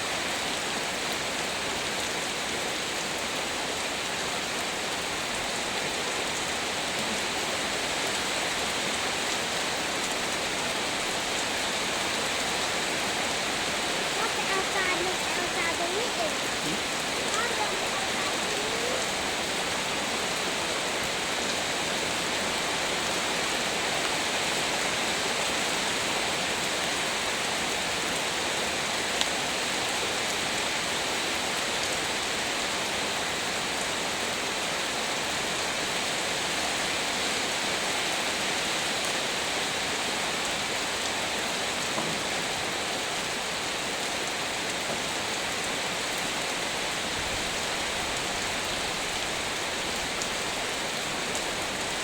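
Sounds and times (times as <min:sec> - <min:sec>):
heavy rain falling: 0:00.0 - 0:52.0.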